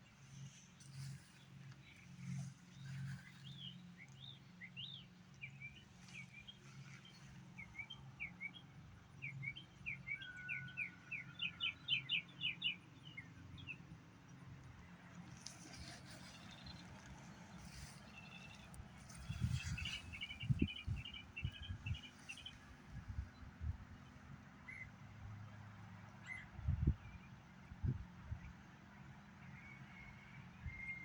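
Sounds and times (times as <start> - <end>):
songbird chirping: 15.2 - 23.5.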